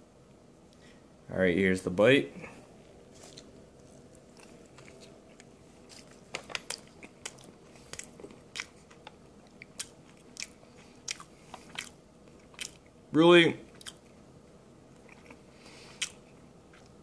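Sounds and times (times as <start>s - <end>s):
person chewing: 2.9s - 13.0s, 13.7s - 14.2s, 14.9s - 17.0s.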